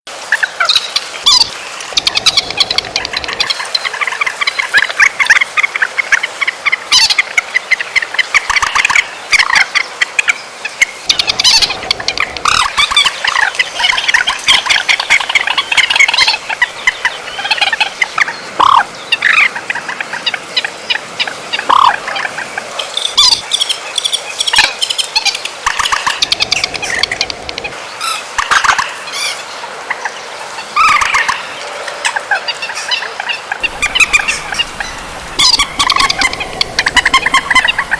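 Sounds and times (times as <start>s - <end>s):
rapid bird chattering: 2.0s - 4.0s, 11.1s - 18.8s, 23.1s - 27.8s, 30.6s - 31.6s, 33.6s - 37.9s
sharp loud bird calls: 10.9s - 19.9s, 30.6s - 31.6s, 32.7s - 37.9s.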